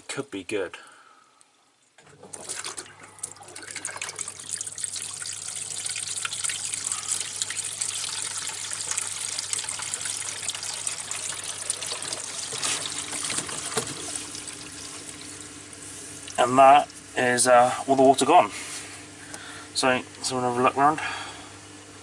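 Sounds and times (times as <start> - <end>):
water trickling through drain pipes: 1.7 - 17.1.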